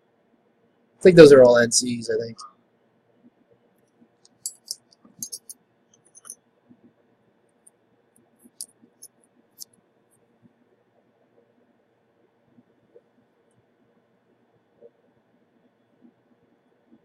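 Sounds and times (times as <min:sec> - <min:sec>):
metal hand tools clicking: 0:04.4 - 0:05.5.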